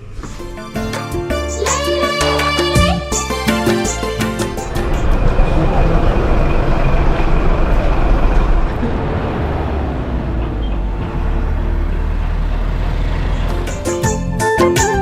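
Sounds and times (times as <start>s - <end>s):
road noise: 3.3s - 14.3s
vehicle engine rumble: 4.0s - 14.3s.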